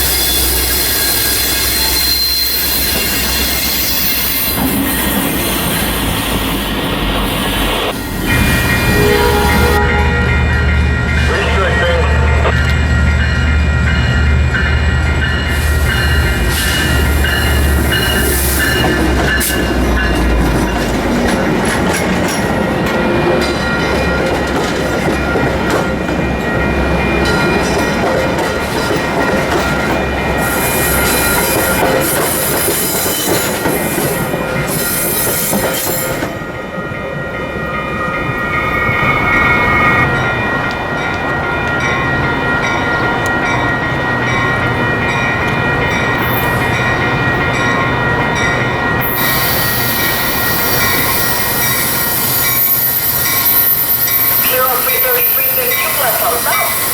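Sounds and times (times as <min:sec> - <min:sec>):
train wheels squealing: 0:00.0 - 0:09.8, 0:15.4 - 0:19.8, 0:30.4 - 0:36.4, 0:49.0 - 0:56.9.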